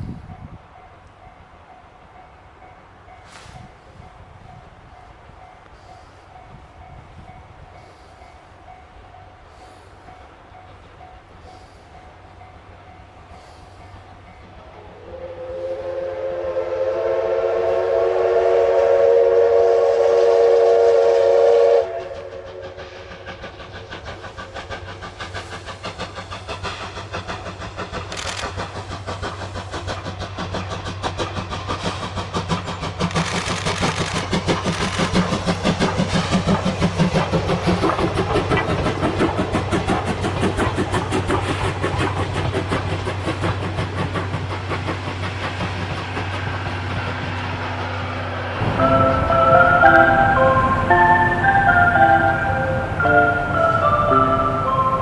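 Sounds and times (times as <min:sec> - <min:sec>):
steam locomotive whistle: 0:14.8 - 0:23.2, 0:48.6 - 0:55.0
locomotive exhaust chuffs: 0:15.1 - 0:47.6, 0:48.6 - 0:55.0.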